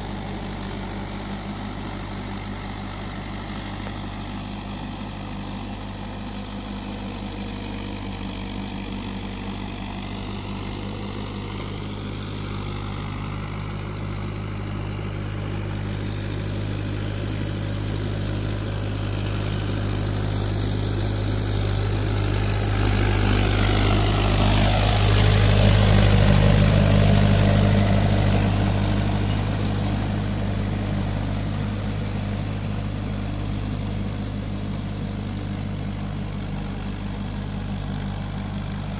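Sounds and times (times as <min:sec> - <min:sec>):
tractor diesel engine passing: 0:00.0 - 0:38.9.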